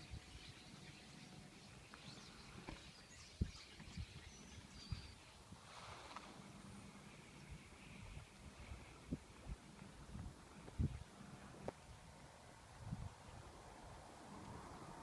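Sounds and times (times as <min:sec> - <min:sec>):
birds chirping and whistling: 0:00.0 - 0:05.4.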